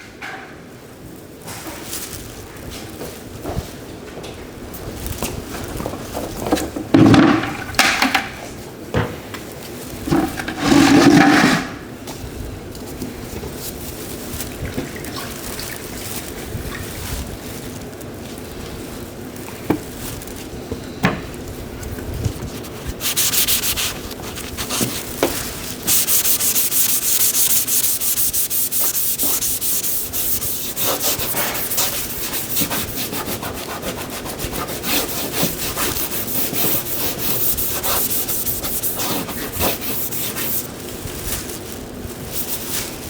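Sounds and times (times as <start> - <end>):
sanding a car body panel: 22.9 - 25.1, 25.8 - 40.7.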